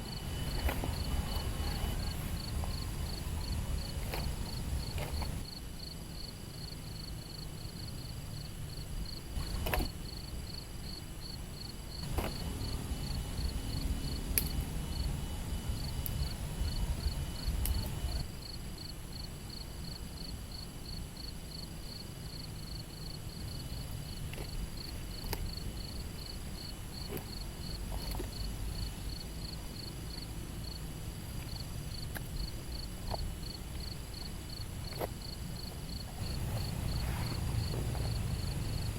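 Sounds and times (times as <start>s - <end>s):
low rumble: 0.0s - 5.5s
insect chirping: 0.0s - 38.9s.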